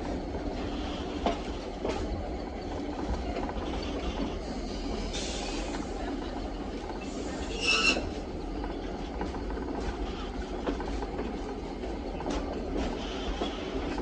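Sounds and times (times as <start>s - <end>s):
train rumbling on track: 0.0s - 14.0s
wheel squeal: 7.4s - 8.2s.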